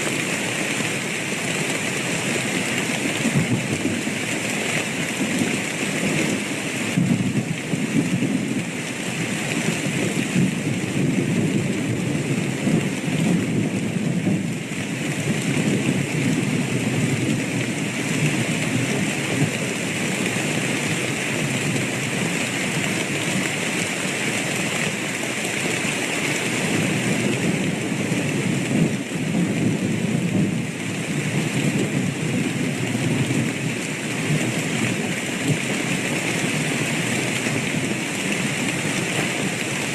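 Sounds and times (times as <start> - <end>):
heavy rain: 0.0 - 39.9
low rumble of thunder: 2.4 - 22.2, 26.6 - 39.9.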